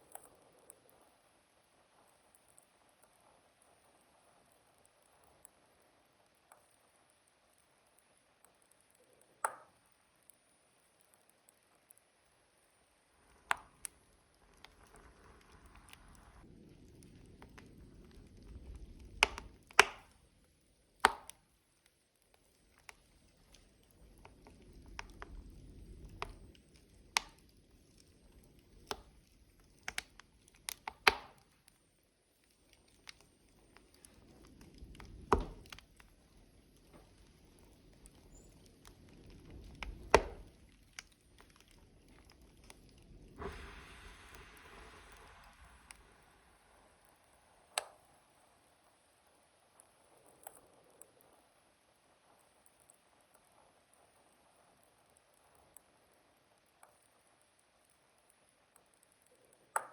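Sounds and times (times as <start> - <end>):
wood logs crackling in stove: 0.0 - 59.9
low rumble of flames: 12.6 - 57.6
hiss: 43.0 - 49.2.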